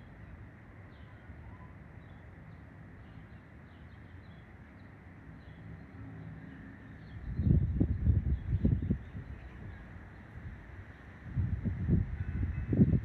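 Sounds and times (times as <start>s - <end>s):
small birds chirping: 0.3s - 11.1s.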